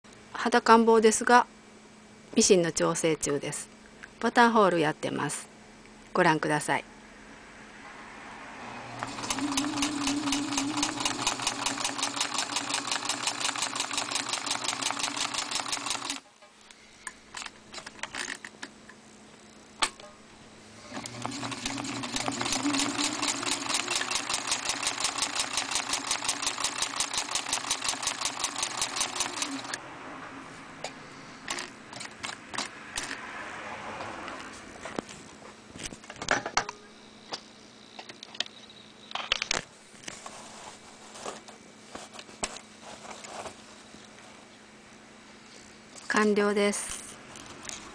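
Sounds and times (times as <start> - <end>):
sewing machine stitching: 9.0 - 16.2, 20.8 - 29.8.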